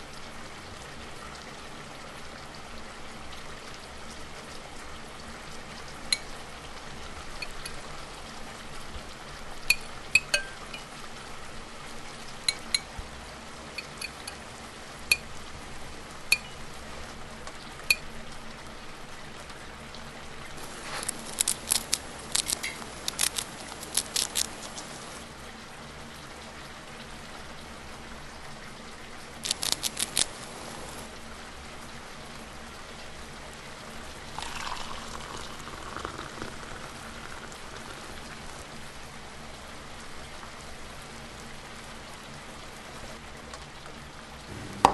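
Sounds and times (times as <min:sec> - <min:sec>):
cookware clinking: 0:07.4 - 0:07.8, 0:09.7 - 0:10.9, 0:13.8 - 0:14.4, 0:16.3 - 0:16.6
rain hissing: 0:19.5 - 0:25.5, 0:29.1 - 0:31.7, 0:33.5 - 0:41.0, 0:44.4 - 0:44.9.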